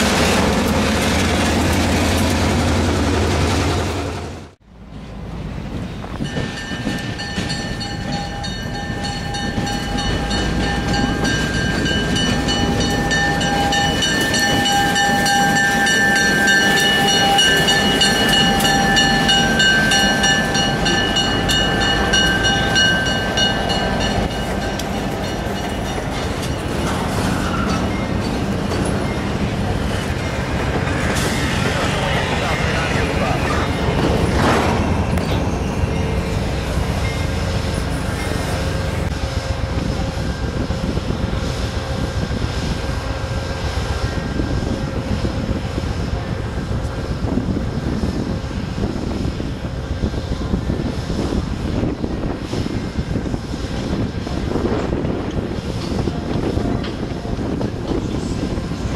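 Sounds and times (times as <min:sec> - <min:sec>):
train wheels clicking over rail joints: 0:06.1 - 0:36.4.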